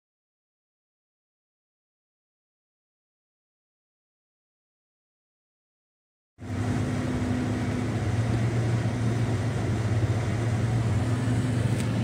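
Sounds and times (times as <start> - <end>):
car engine and road drone: 6.4 - 12.0.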